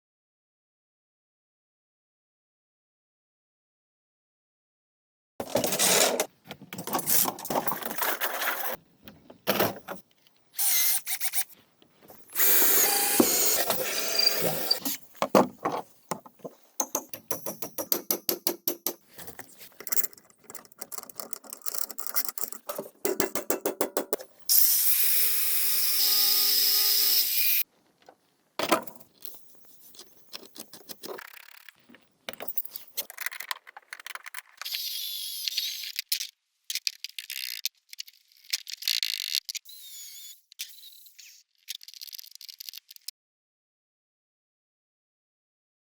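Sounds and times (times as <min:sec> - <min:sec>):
power tool whine: 0:12.4 - 0:14.8, 0:24.5 - 0:27.6.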